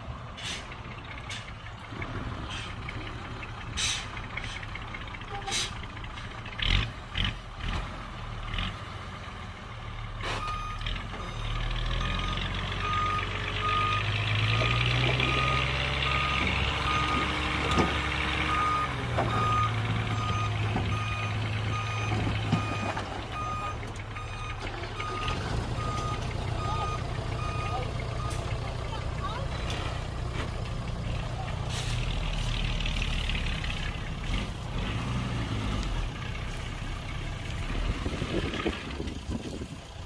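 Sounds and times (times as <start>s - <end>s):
diesel engine under load: 0.0s - 40.0s
reversing alarm beeps: 10.4s - 14.1s, 18.5s - 28.3s.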